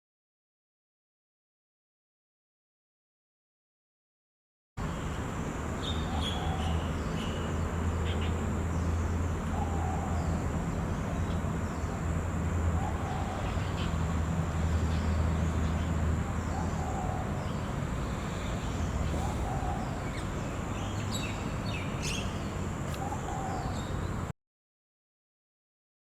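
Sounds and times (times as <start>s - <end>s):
steady low hum: 6.8s - 24.3s
bird chirps and calls: 14.9s - 24.2s.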